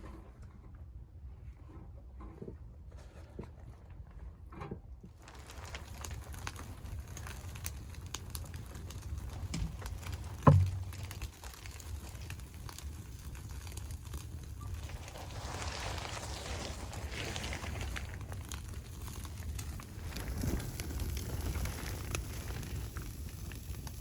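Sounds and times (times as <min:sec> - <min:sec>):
low rumble of stove: 0:00.0 - 0:24.0
wood fire crackling: 0:05.2 - 0:24.0.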